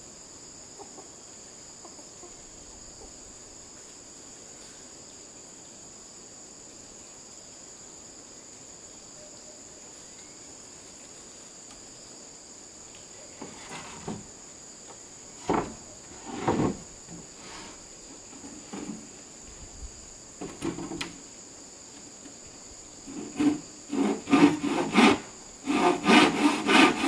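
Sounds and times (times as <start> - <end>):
crickets trilling: 0.0 - 27.0
knocks and thuds: 15.4 - 17.3.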